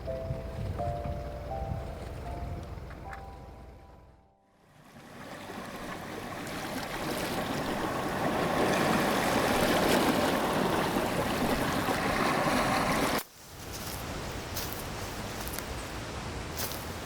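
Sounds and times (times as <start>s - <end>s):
rushing water: 4.6s - 13.3s.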